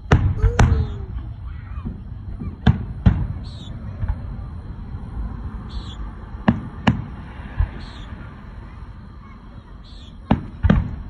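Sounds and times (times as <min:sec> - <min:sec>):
fireworks bangs: 0:00.0 - 0:04.8, 0:05.7 - 0:08.3, 0:10.2 - 0:11.0.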